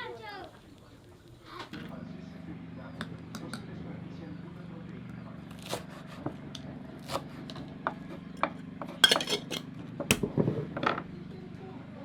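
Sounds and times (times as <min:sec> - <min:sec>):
dishes and utensils clinking: 0:09.0 - 0:09.7.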